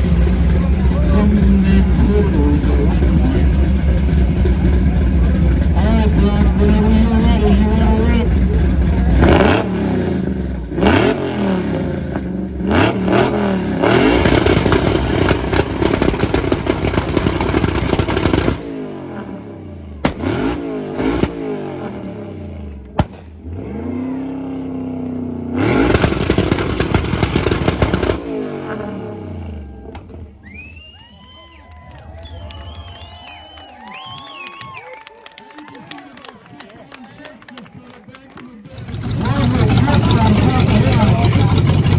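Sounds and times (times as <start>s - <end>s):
sharp exhaust crack: 0.0s - 19.3s, 20.0s - 21.4s, 25.6s - 28.9s, 38.7s - 41.9s
car engine revving hard: 0.0s - 30.1s, 38.7s - 41.9s
spectator whooping: 29.4s - 37.4s.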